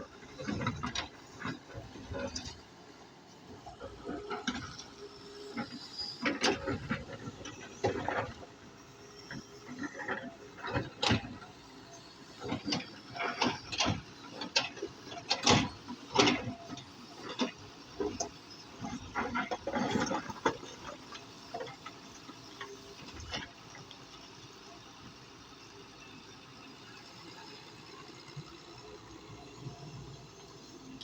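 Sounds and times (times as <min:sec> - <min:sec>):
excavator metallic clanks: 0:00.1 - 0:23.7.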